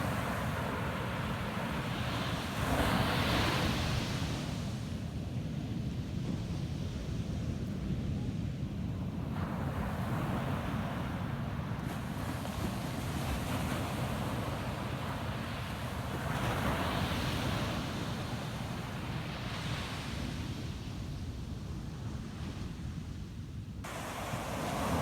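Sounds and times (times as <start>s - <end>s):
ocean waves breaking: 23.9s - 25.0s.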